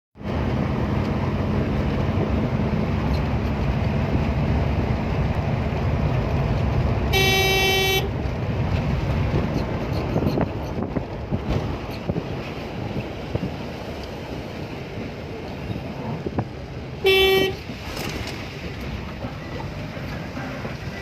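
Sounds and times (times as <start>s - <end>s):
vehicle horn: 7.1s - 8.1s, 17.0s - 17.6s.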